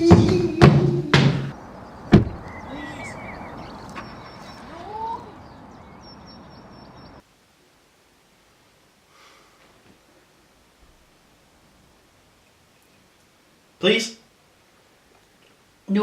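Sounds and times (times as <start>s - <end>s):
thud: 0.1s - 1.5s, 2.1s - 2.4s
bird chirps: 1.5s - 7.2s
steady hiss: 7.2s - 15.9s.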